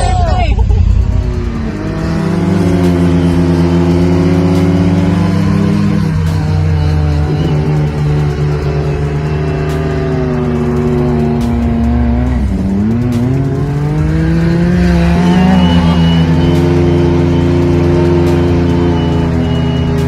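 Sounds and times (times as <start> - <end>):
hip hop beat: 0.0 - 20.0
vehicle engine revving: 0.0 - 20.0.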